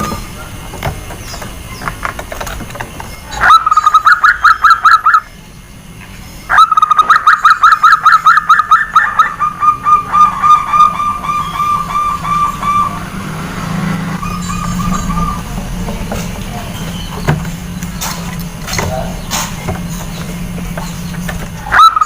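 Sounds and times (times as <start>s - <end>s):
dove cooing: 3.2s - 5.3s, 6.5s - 22.0s.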